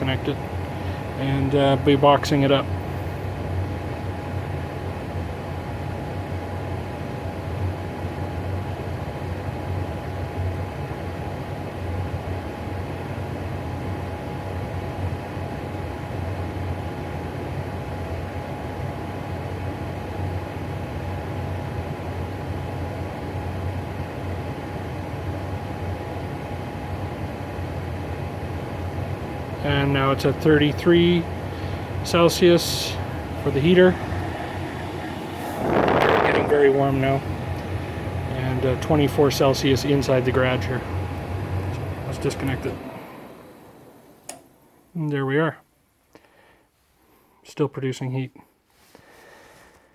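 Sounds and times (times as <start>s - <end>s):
faint steady whine: 0.0s - 49.9s
furnace blower fan whirring: 0.0s - 49.9s.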